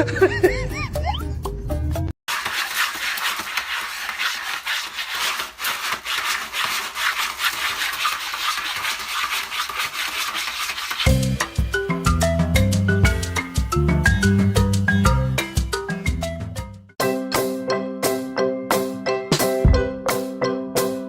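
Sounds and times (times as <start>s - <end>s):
music: 0.1s - 2.1s, 11.1s - 21.0s
rough scratching strokes: 2.3s - 15.6s.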